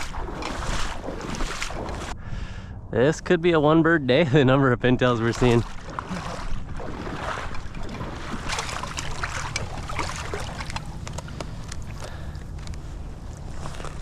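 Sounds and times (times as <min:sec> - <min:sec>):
water sloshing and splashing: 0:00.0 - 0:02.2, 0:05.0 - 0:14.0
sharp clicks and crackles: 0:08.5 - 0:12.9.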